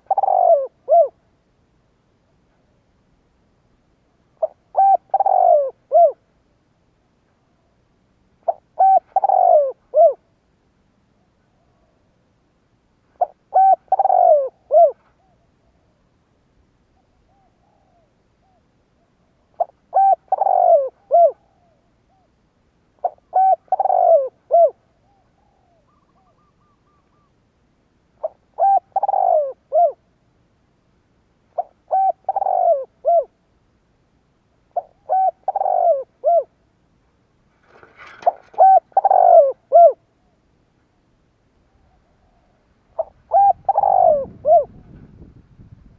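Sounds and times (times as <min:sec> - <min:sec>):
dove cooing: 0:00.0 - 0:01.2, 0:04.4 - 0:06.3, 0:08.4 - 0:10.3, 0:13.2 - 0:16.0, 0:17.0 - 0:22.4, 0:23.0 - 0:27.4, 0:28.2 - 0:30.0, 0:31.6 - 0:33.4, 0:34.7 - 0:36.6, 0:37.6 - 0:40.4, 0:41.7 - 0:45.1.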